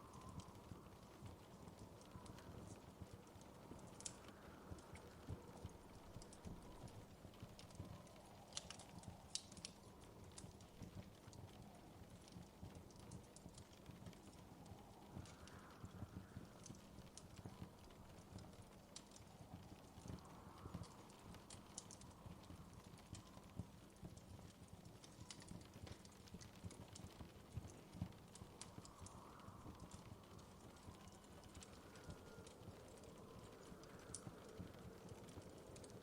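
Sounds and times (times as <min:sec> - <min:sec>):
low rumble of flames: 0:00.0 - 0:36.0
wood fire crackling and popping: 0:00.0 - 0:36.0.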